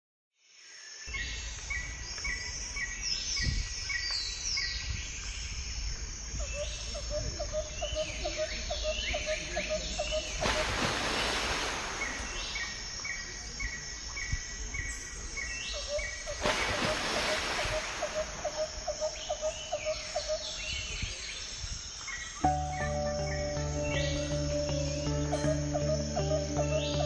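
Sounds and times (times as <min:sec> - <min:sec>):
songbirds chirping and singing: 0:01.1 - 0:10.8, 0:18.4 - 0:27.0.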